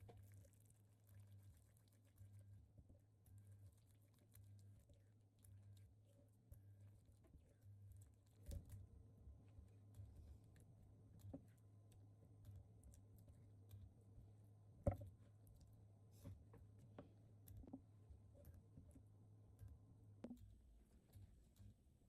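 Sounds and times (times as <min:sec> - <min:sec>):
faint clicks and light knocks: 0:00.0 - 0:21.8
low steady hum: 0:00.0 - 0:22.0.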